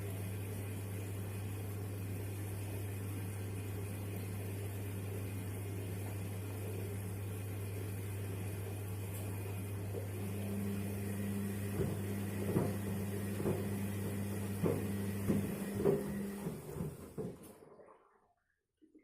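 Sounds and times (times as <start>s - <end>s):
washing machine motor hum: 0.0s - 18.0s
shoes knocking in drum: 14.6s - 17.4s.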